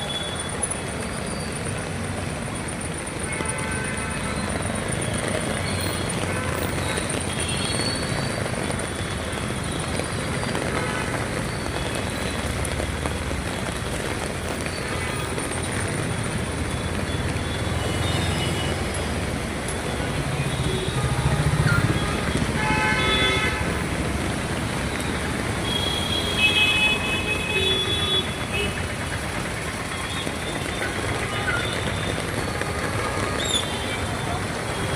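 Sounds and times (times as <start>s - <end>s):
rain and wet tyres hissing: 0.0s - 34.9s
passing vehicle engines: 15.5s - 26.2s
vehicle horns tooting: 19.9s - 23.8s, 25.6s - 29.0s, 29.8s - 34.9s.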